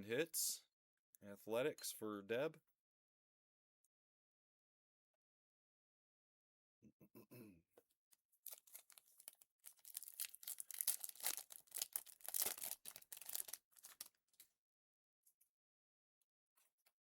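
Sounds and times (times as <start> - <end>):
wrapper tearing and crinkling: 8.5 - 14.1.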